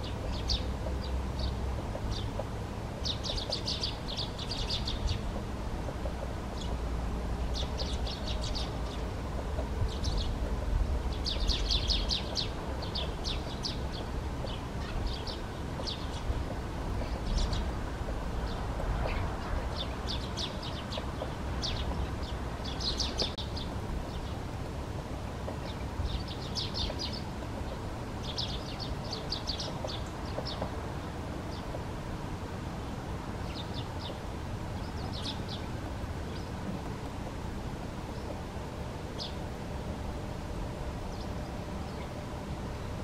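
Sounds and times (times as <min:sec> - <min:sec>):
birds chirping: 0:00.0 - 0:43.0
steady low rumble: 0:00.0 - 0:43.0.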